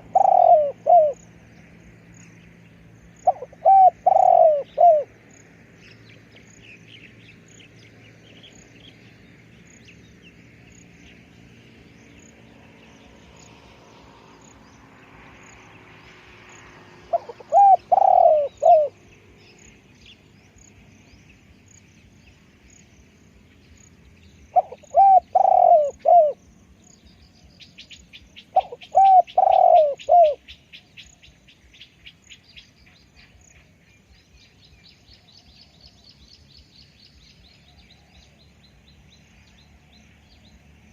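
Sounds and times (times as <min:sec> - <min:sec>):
dove cooing: 0:00.0 - 0:01.2, 0:03.2 - 0:05.1, 0:17.0 - 0:19.0, 0:24.5 - 0:26.4, 0:28.4 - 0:30.4
small birds chirping: 0:00.0 - 0:40.9.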